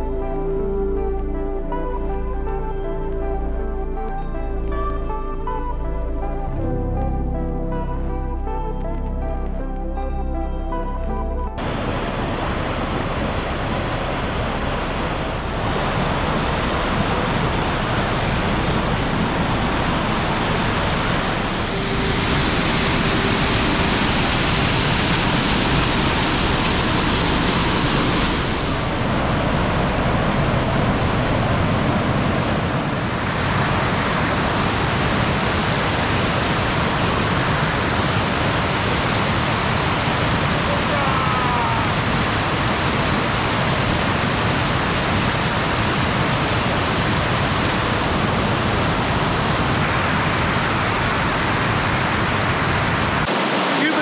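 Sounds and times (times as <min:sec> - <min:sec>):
waterfall rushing: 0:11.6 - 0:54.0.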